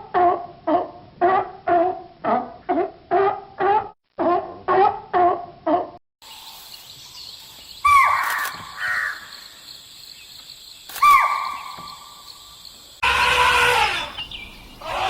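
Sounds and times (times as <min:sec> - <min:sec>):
outdoor background noise: 0:00.0 - 0:15.0
harsh animal calls falling in pitch: 0:13.0 - 0:15.0
short animal calls: 0:13.0 - 0:15.0.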